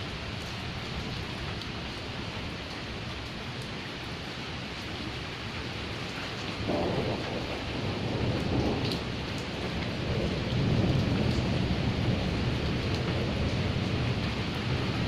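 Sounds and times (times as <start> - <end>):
steady rain: 0.0 - 15.0
rolling thunder: 6.6 - 15.0.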